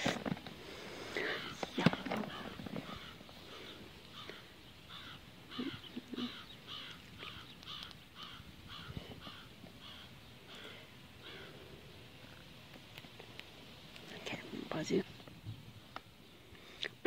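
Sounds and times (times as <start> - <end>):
bird calling: 0.0 - 12.6.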